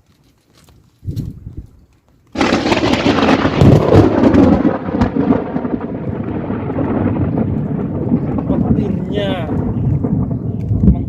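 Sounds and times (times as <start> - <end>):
rain: 2.3 - 11.0
thunder rolling: 2.4 - 11.0.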